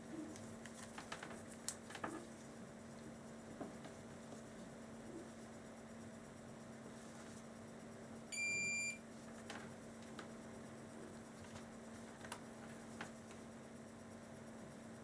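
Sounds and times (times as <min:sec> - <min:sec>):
multimeter continuity beep: 0:08.3 - 0:09.0.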